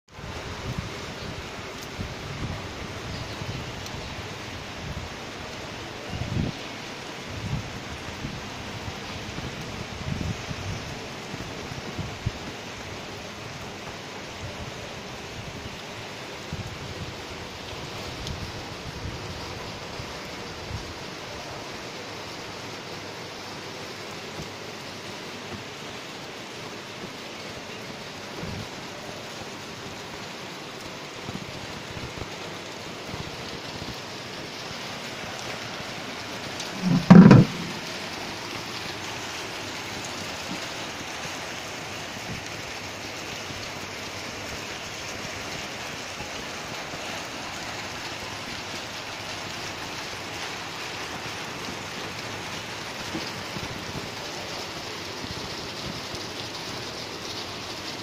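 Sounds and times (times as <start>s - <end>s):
steady rain falling: 0.1s - 58.0s
loud low thump: 36.8s - 37.8s.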